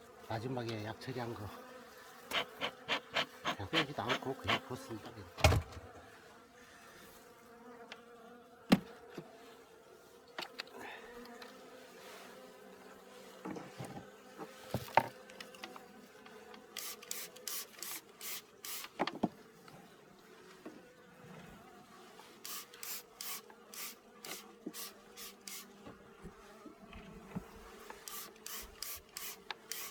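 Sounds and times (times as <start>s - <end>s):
bees buzzing: 1.0s - 6.9s, 22.3s - 29.9s
hive frames knocking: 5.4s - 5.9s.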